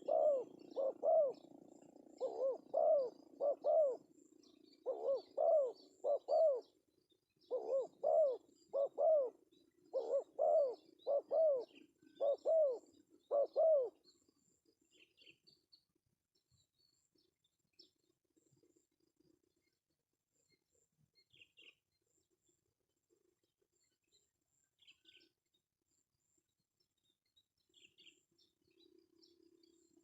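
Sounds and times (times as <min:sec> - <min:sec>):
dove cooing: 0:00.0 - 0:06.8, 0:07.5 - 0:14.0.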